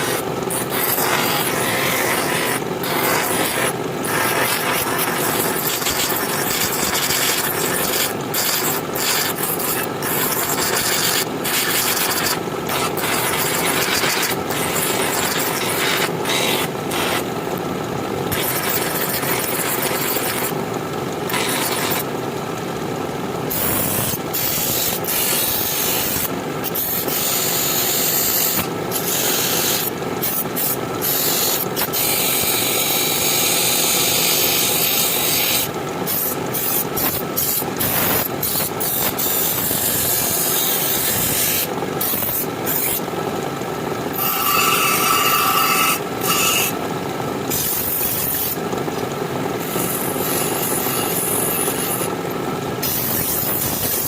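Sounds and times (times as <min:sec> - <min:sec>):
knife being rubbed and rasped: 0:00.0 - 0:17.2, 0:23.5 - 0:32.3.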